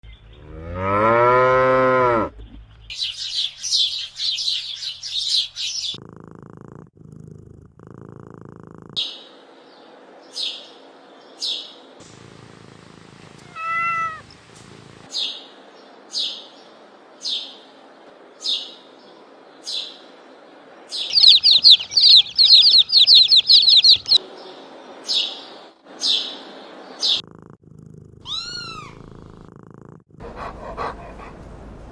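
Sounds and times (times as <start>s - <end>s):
small bird chirping: 2.8s - 6.0s, 20.9s - 24.2s, 28.2s - 29.0s
drawn-out meow-like bird call: 13.5s - 14.2s, 21.1s - 24.2s, 28.3s - 29.0s
fast loud bird trill: 21.1s - 24.2s.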